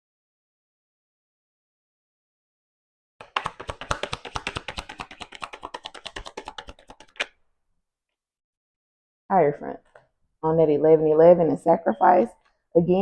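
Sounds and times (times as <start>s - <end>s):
cards being shuffled: 3.2s - 7.4s.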